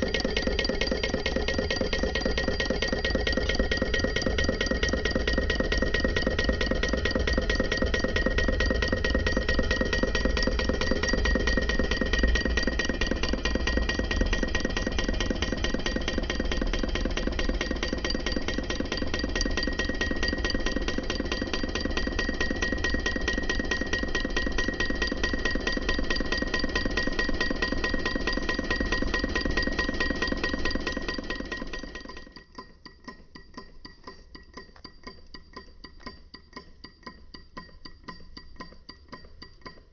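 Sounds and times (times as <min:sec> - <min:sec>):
model engine clattering: 0:00.0 - 0:32.5
light ticking: 0:32.1 - 0:39.9.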